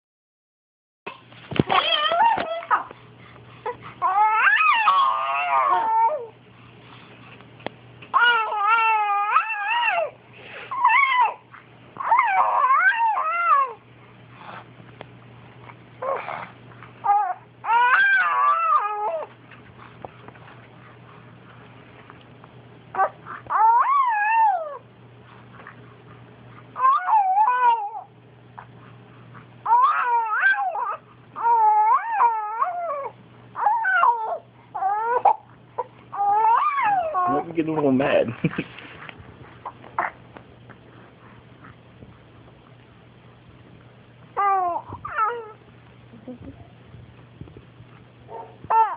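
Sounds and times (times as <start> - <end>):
pet animal yowling: 1.6 - 2.9, 3.6 - 6.4, 8.1 - 13.8, 16.0 - 19.4, 22.9 - 24.9, 26.8 - 28.1, 29.6 - 37.5, 39.6 - 40.2, 44.4 - 45.6, 48.3 - 48.9
dog howling and whining: 1.6 - 3.0, 3.6 - 6.4, 8.1 - 13.9, 16.0 - 19.4, 22.9 - 24.9, 26.7 - 28.7, 29.6 - 37.6, 44.3 - 45.6, 48.3 - 48.9.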